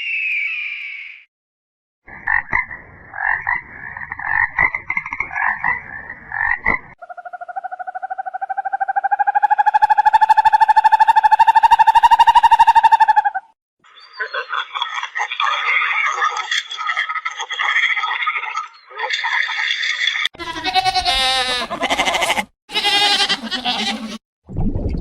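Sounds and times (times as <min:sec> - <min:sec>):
frog croaking: 0:02.2 - 0:11.8
frog pulsed trill: 0:07.0 - 0:13.4.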